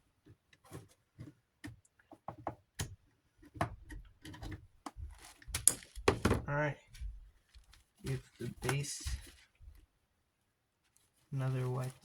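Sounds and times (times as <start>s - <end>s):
plastic parts clicking and knocking: 0.2s - 7.0s.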